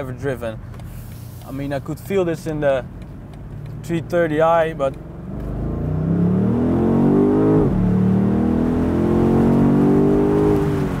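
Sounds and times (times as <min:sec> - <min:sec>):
car engine accelerating hard: 0:04.9 - 0:11.0.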